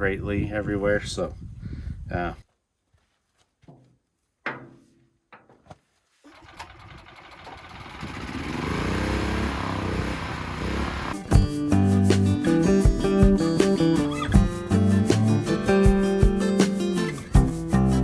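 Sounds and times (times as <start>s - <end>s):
motor running up: 6.8s - 11.3s
music: 11.2s - 18.0s.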